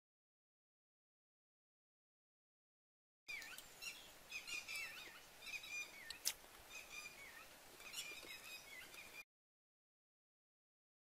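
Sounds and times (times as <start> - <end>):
small birds chirping: 3.3 - 9.2.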